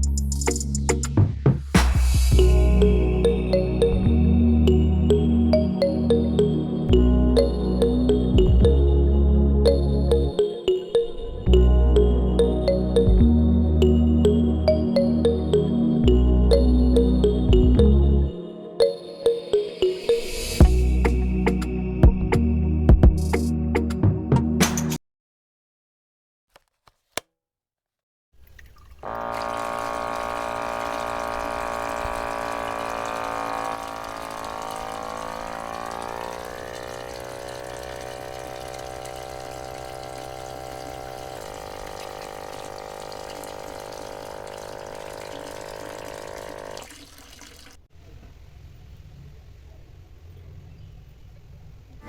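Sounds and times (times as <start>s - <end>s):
water running and splashing: 28.4s - 47.9s
small electric motor humming: 29.0s - 46.9s.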